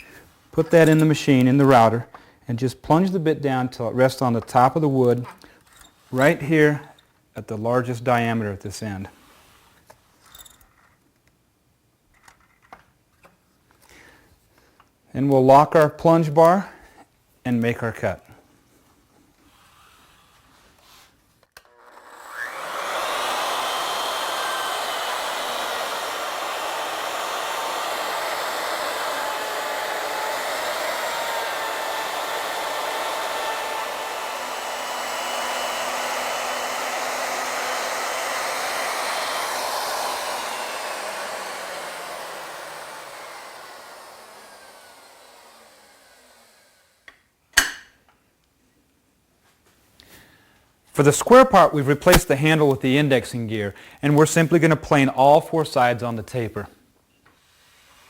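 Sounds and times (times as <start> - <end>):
router cutting wood: 21.6 - 47.1, 51.2 - 53.1.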